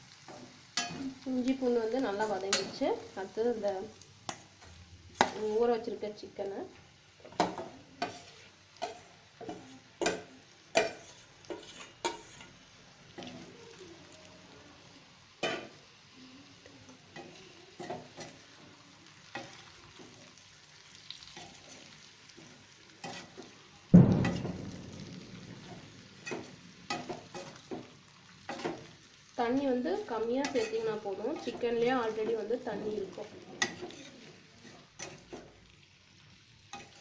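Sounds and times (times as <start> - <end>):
loud sizzle burst: 0.0 - 6.6, 18.9 - 37.0
frying in hot oil: 0.0 - 37.0
spatula scraping a pan: 4.3 - 5.6, 7.2 - 13.5, 17.1 - 18.6, 19.2 - 23.6, 24.2 - 29.1, 30.0 - 35.7, 36.7 - 37.0.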